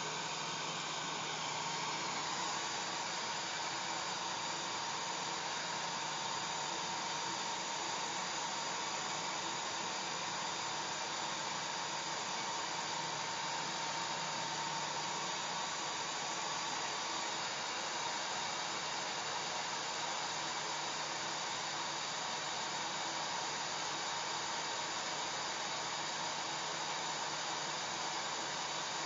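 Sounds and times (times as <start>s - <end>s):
hair dryer running: 0.0s - 16.8s.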